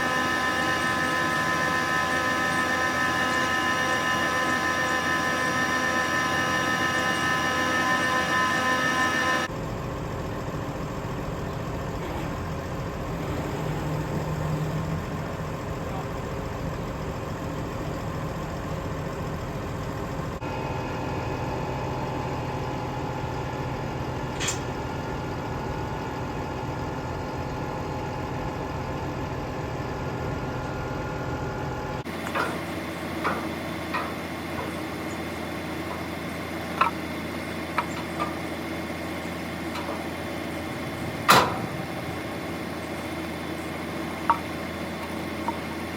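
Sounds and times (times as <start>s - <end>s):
vehicle engine running: 0.0s - 45.9s
sharp clicks and knocks: 32.2s - 34.8s, 41.3s - 41.8s.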